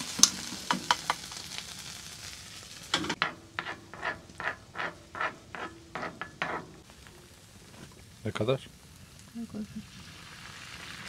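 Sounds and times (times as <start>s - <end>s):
onions sizzling in a pan: 0.0s - 11.0s
utensil stirring and scraping: 3.1s - 6.9s.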